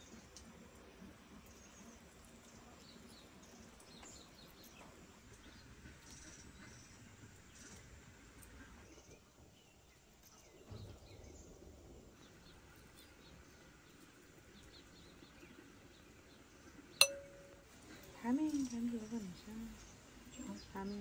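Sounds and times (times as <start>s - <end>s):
clear ringing tone: 17.0s - 17.7s
sharp clink: 17.0s - 17.7s.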